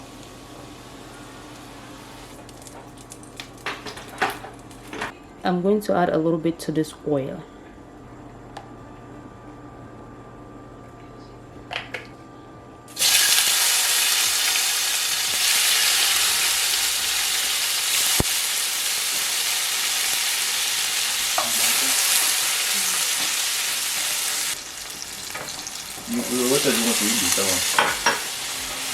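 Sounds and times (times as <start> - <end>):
food sizzling in hot oil: 0.0 - 3.2, 12.9 - 28.9.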